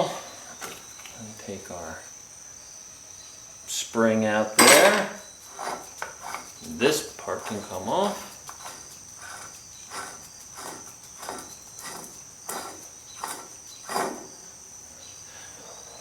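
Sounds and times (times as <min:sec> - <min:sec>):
light metal clinks and knocks: 0:04.6 - 0:05.3.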